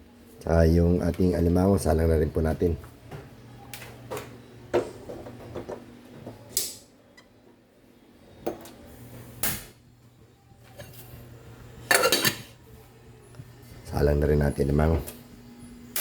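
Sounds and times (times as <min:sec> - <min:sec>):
steady low hum: 0:00.0 - 0:16.0
cookware clatter: 0:11.8 - 0:12.6.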